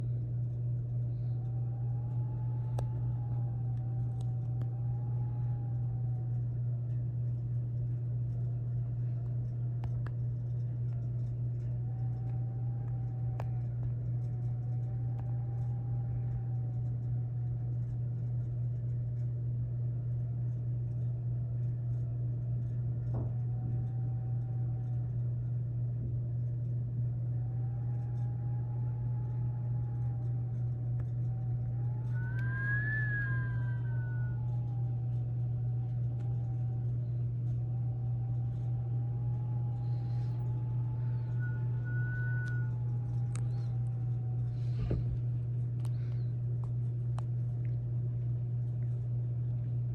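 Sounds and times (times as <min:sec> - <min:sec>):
faint clicks: 0:00.0 - 0:49.7.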